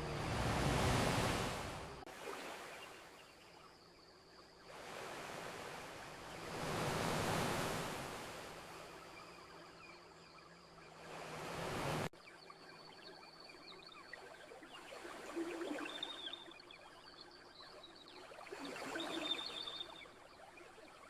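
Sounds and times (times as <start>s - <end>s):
ocean waves washing on beach: 0.0s - 3.4s, 4.7s - 9.2s, 10.9s - 12.1s.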